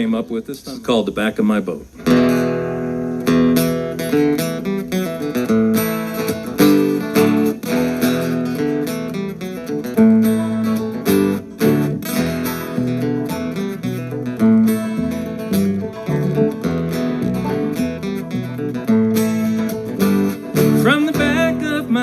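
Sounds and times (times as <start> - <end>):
acoustic guitar strumming chords: 2.0 - 22.0.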